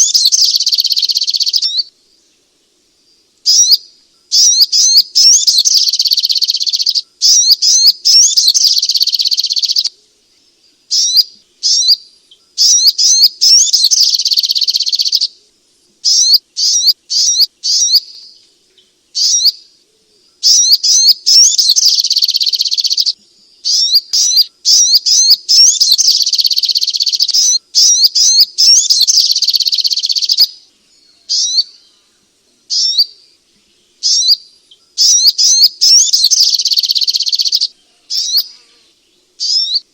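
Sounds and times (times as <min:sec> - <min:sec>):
bird chattering: 0:00.0 - 0:01.8, 0:03.5 - 0:09.9, 0:10.9 - 0:12.0, 0:12.6 - 0:15.3, 0:16.1 - 0:18.2, 0:19.2 - 0:19.6, 0:20.4 - 0:30.5, 0:34.0 - 0:34.4, 0:35.0 - 0:38.5.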